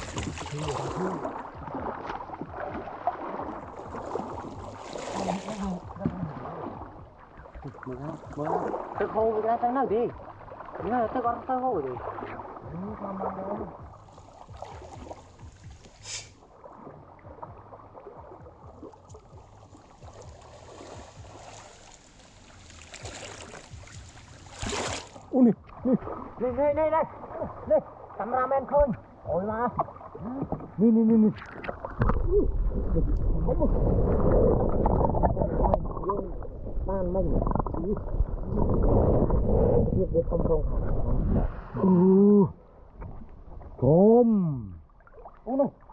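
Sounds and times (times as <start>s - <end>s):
river water splashing: 0.0s - 43.9s, 44.7s - 45.9s
low vocal sounds: 0.1s - 1.8s, 5.1s - 6.9s, 12.6s - 13.9s, 32.1s - 42.8s, 43.8s - 44.9s.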